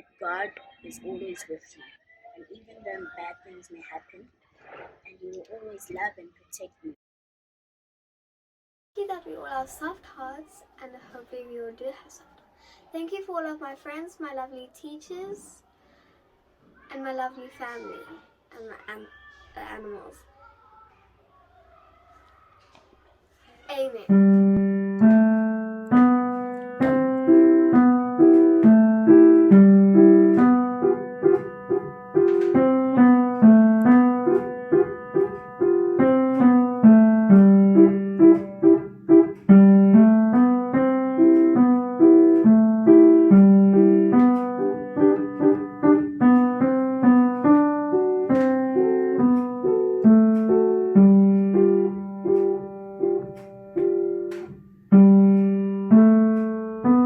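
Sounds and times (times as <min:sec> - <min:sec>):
solo piano melody: 0:24.1 - 0:57.0.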